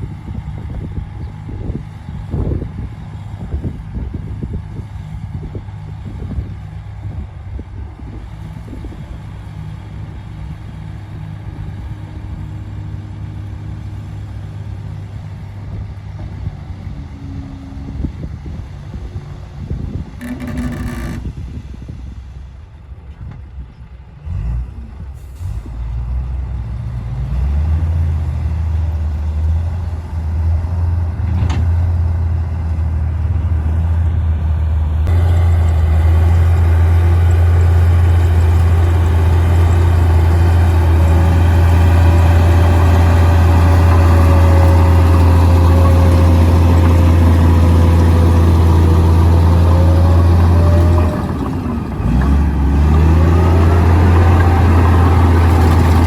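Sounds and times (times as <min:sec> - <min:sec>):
bulldozer diesel engine rumbling: 0:00.0 - 0:56.0.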